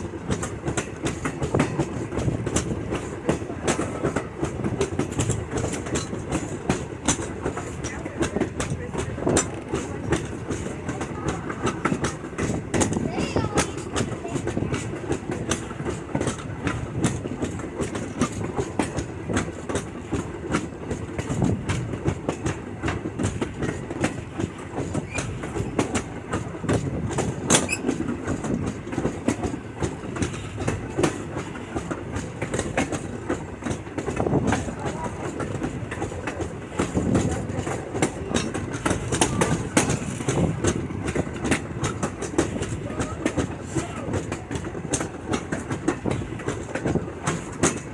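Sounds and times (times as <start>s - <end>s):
railroad car wheels clickety-clack: 0.0s - 47.9s.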